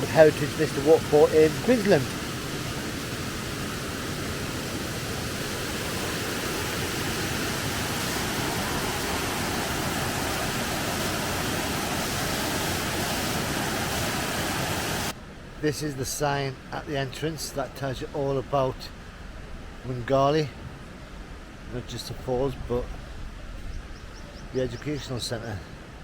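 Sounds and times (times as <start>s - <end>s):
waterfall rushing: 0.0s - 15.2s.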